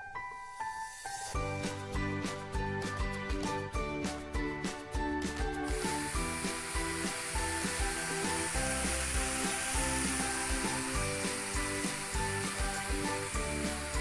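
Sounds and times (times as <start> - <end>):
background music with a beat: 0.1 - 14.0
vegetables sizzling in a wok: 0.4 - 1.6, 5.6 - 14.0.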